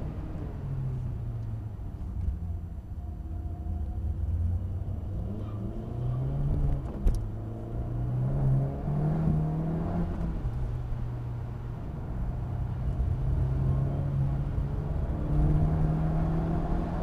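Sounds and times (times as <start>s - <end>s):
car engine accelerating: 4.0s - 17.0s.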